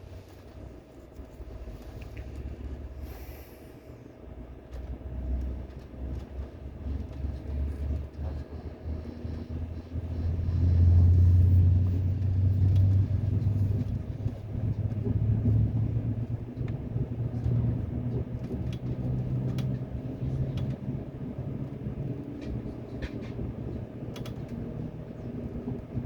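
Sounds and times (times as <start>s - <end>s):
train rumbling past: 6.8s - 26.0s.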